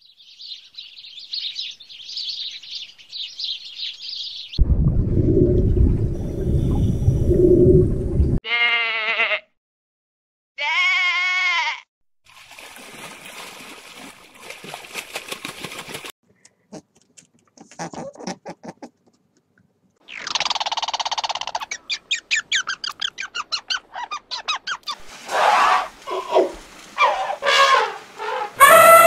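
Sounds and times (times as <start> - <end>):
loud low rumbling: 4.6 - 8.4
wavering bleats: 8.5 - 9.5, 10.6 - 11.8.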